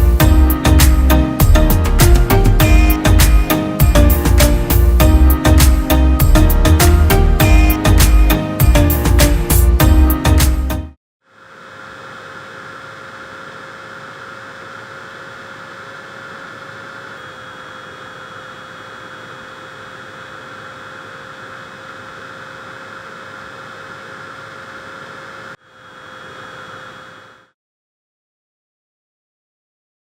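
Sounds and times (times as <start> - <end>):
small fan running: 11.3 - 27.5.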